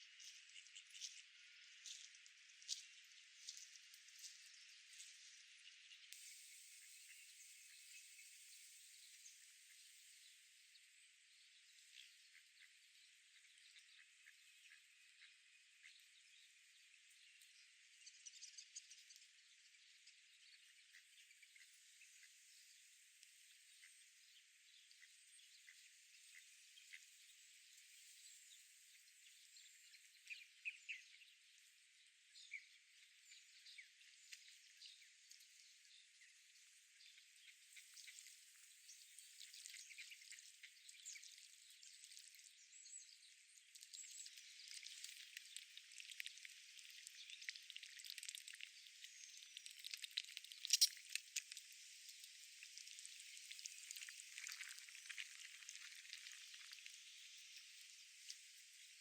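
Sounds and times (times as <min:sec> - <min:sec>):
small bird chirps: 0:00.1 - 0:59.0
steady high hiss: 0:06.2 - 0:09.2.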